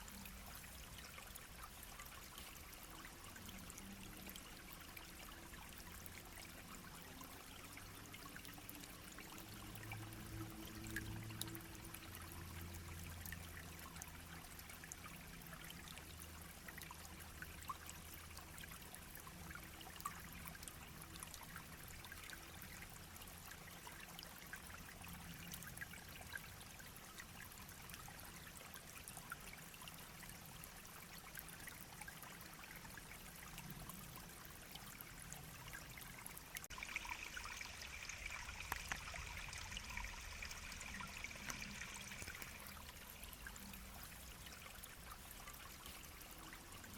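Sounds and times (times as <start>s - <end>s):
stream babbling: 20.8s - 46.9s.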